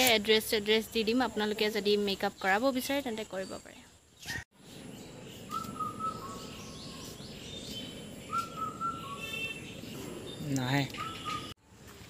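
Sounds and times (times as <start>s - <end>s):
birds chirping: 0.0s - 11.6s
outdoor background hiss: 0.0s - 12.0s
bird whistling long note: 5.5s - 6.9s, 8.3s - 9.6s.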